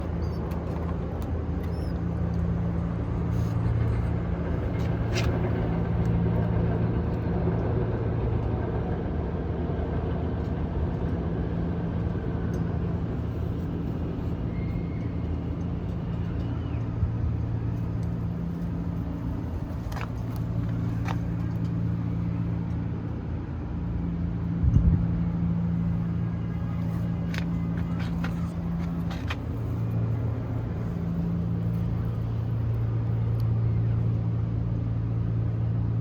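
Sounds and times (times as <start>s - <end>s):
low mechanical hum: 0.0s - 36.0s.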